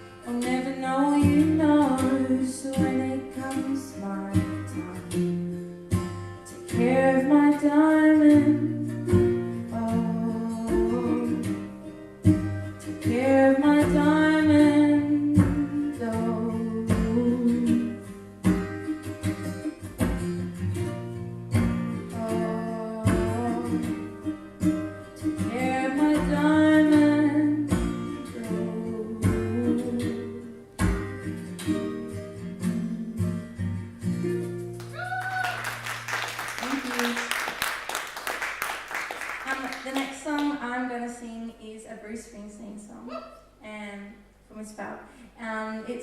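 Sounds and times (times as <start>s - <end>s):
acoustic guitar strummed: 0.0s - 35.0s.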